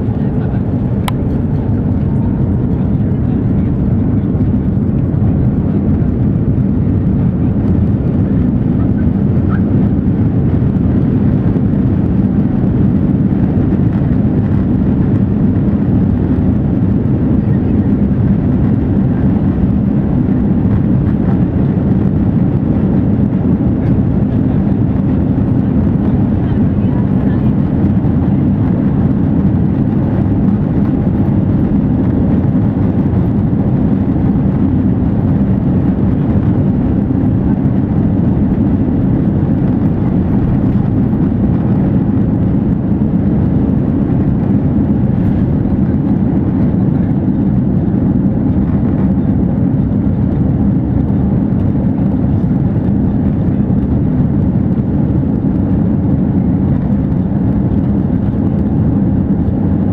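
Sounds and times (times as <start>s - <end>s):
jet engines rumbling in cabin: 0.0s - 59.9s.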